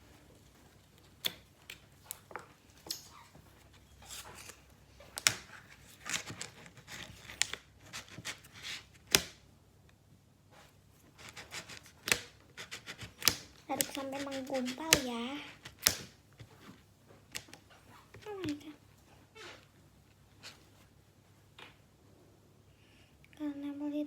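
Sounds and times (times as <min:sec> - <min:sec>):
slime stirring sticky clicks: 0:11.3 - 0:16.2.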